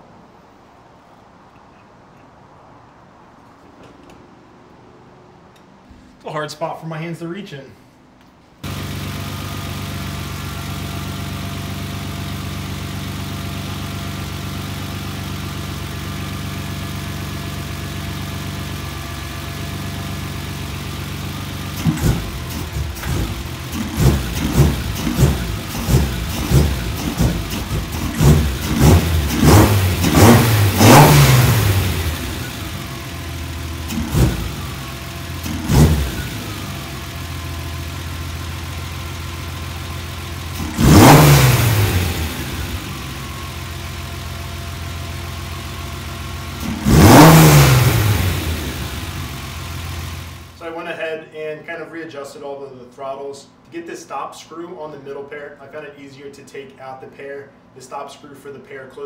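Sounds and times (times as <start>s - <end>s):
car engine idling and revving: 8.6s - 50.6s.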